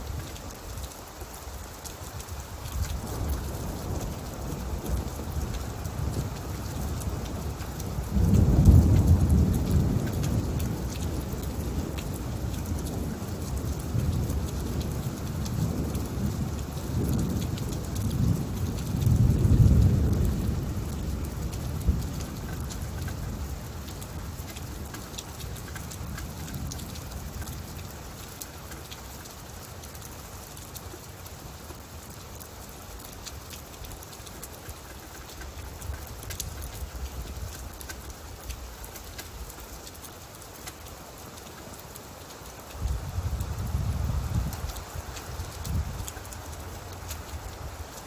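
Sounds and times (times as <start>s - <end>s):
steady rain falling: 0.0s - 48.0s
thunder rumbling: 3.0s - 23.5s.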